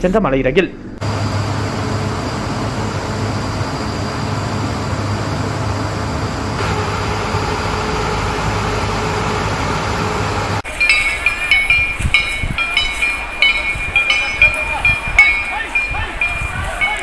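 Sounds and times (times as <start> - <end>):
vehicle engine droning: 1.0 - 10.6.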